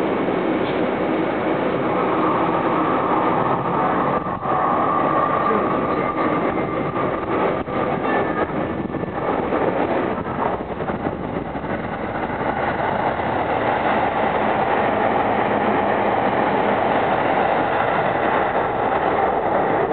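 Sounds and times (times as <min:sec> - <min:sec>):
train wheels rumbling on rails: 0:00.0 - 0:19.9.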